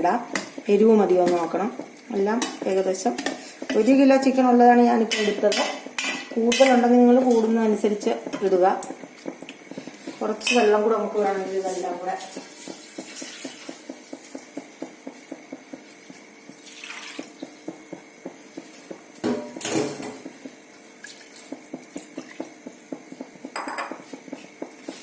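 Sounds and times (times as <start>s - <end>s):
metal spoon scraping a pan: 5.0s - 7.6s, 10.0s - 10.8s.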